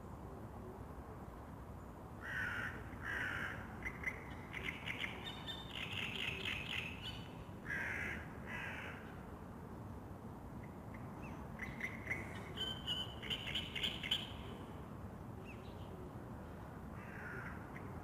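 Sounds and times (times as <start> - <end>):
low outdoor background hiss: 0.0 - 18.0
crow cawing: 2.2 - 3.7, 7.7 - 9.0, 17.0 - 17.6.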